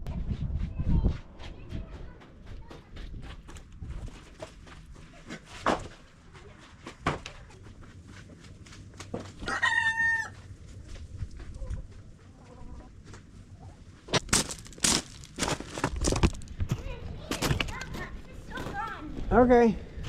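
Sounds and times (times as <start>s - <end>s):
rooster crowing: 9.4s - 10.5s.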